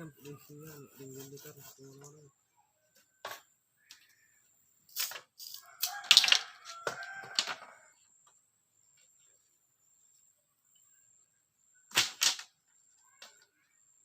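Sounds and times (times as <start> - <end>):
sharp knocks and cracks: 11.9 - 12.5.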